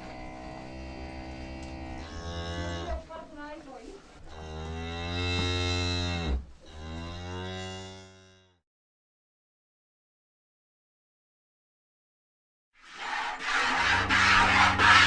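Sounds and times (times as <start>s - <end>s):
cattle mooing: 0.0s - 3.0s, 4.3s - 8.6s.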